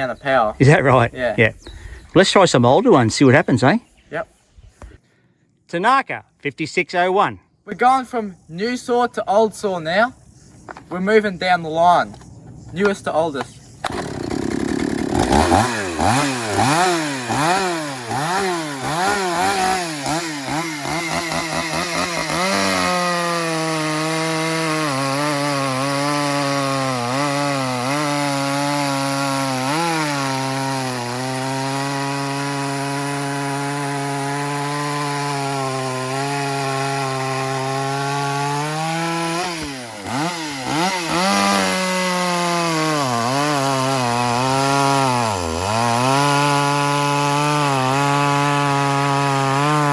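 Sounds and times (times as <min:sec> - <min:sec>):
chainsaw cutting log: 0:13.8 - 0:49.9
chainsaw revving: 0:13.8 - 0:49.9.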